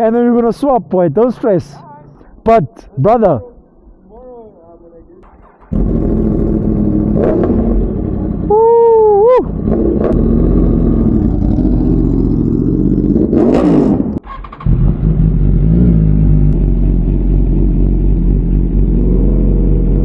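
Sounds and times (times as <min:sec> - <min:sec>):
motorcycle engines revving: 0:05.2 - 0:20.0.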